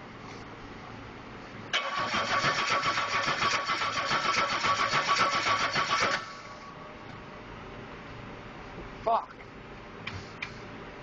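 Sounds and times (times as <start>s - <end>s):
engine cranking on starter motor: 1.7s - 6.5s.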